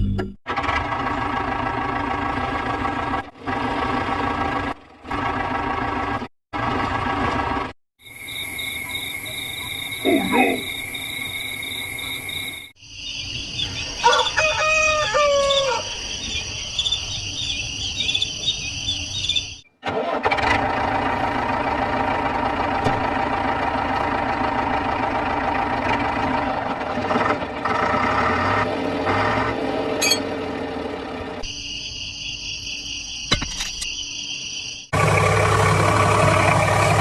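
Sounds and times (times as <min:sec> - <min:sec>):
crickets chirping: 0:08.0 - 0:19.7, 0:31.4 - 0:35.0
rooster crowing: 0:13.8 - 0:16.1.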